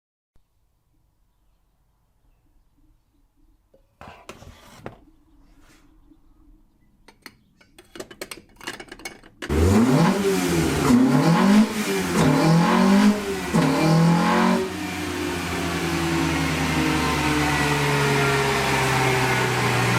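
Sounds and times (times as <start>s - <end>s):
car engine revving and idling: 9.5s - 19.9s.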